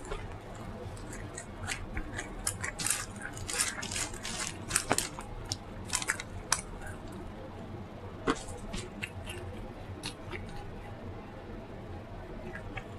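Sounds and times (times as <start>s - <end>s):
chewing and lip smacking: 0.0s - 7.2s, 8.3s - 11.0s.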